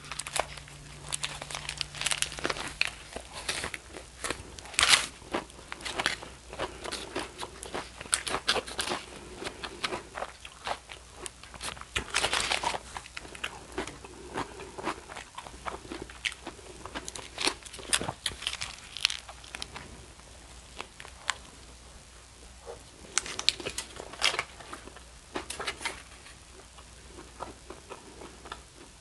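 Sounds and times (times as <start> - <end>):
wet chewing crunches: 0.0 - 20.0.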